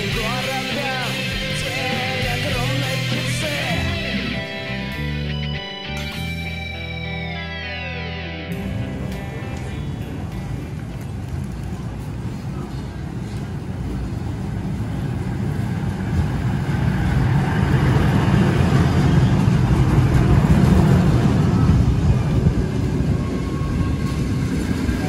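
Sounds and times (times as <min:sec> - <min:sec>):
train wheels rumbling on rails: 0:10.0 - 0:25.0.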